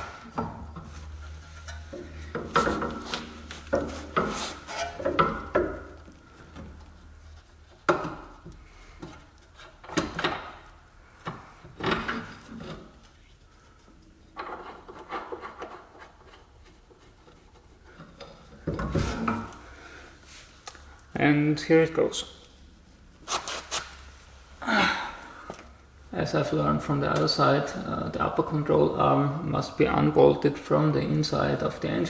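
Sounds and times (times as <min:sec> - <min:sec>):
metal scraping and rubbing: 0:00.0 - 0:07.9.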